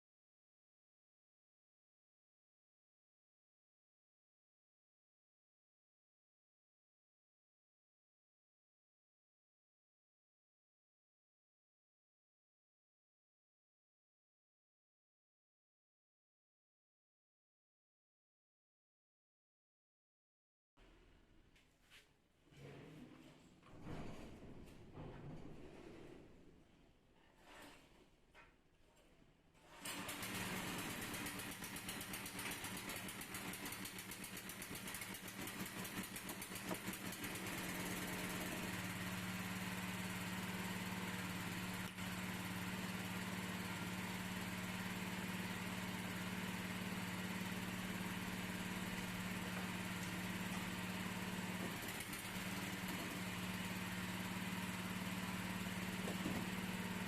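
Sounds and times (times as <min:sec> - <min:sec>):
electric rotary hammer running: 0:29.8 - 0:57.0.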